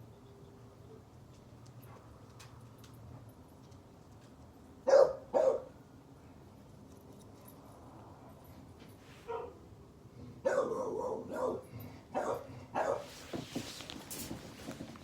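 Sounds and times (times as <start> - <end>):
dog barking: 4.8 - 5.7, 9.2 - 9.6, 10.4 - 13.1.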